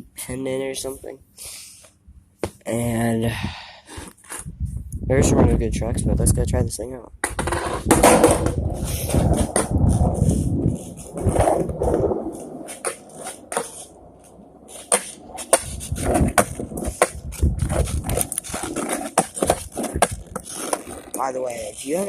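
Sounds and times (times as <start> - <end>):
skateboard clicks and knocks: 7.2 - 22.0
skateboard rolling on pavement: 7.2 - 22.0.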